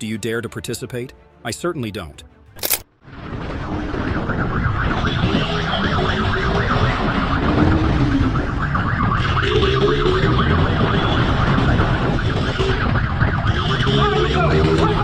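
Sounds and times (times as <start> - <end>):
engine and road noise: 2.3 - 15.0
siren wailing: 3.1 - 15.0.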